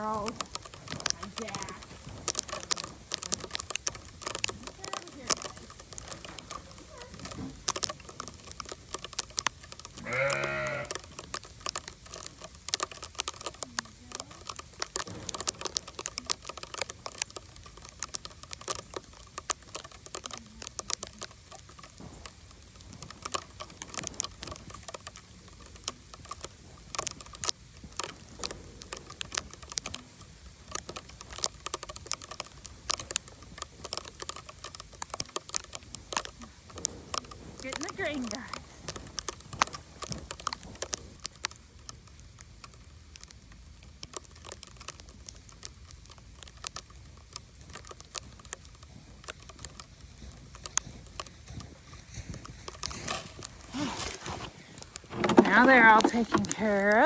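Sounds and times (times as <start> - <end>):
sleet pellets ticking: 0.0 - 57.0
bleat: 10.0 - 11.0.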